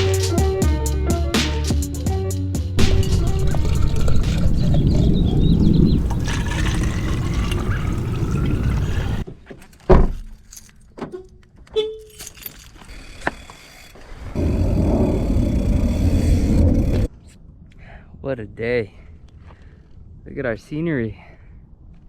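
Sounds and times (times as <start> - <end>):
loud thud: 2.8 - 6.2
car rumbling: 2.8 - 9.2
keys jingling: 9.7 - 11.0, 12.0 - 12.9.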